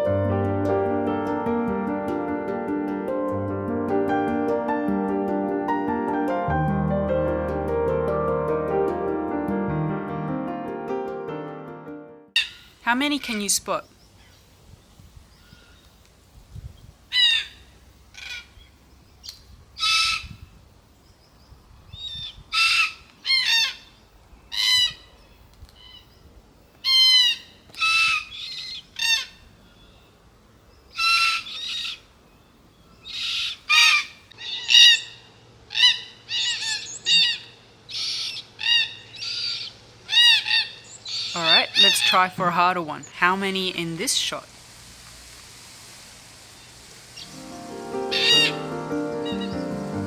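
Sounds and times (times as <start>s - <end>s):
cockatoos calling harshly: 33.2s - 42.3s, 47.2s - 50.0s.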